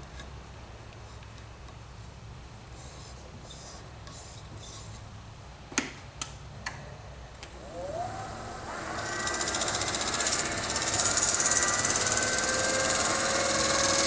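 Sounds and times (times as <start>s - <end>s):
wood lathe motor whining: 7.5s - 14.0s.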